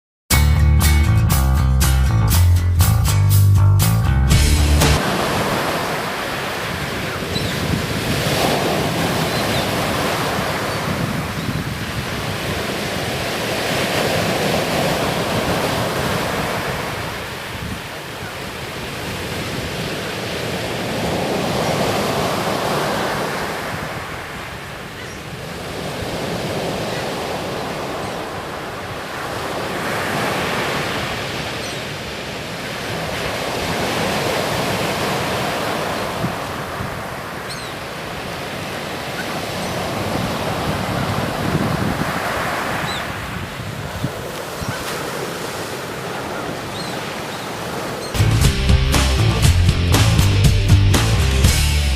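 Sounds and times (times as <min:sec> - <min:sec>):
waves breaking on a beach: 0:04.9 - 0:48.2
wind buffeting the microphone: 0:05.1 - 0:20.1, 0:39.7 - 0:45.1.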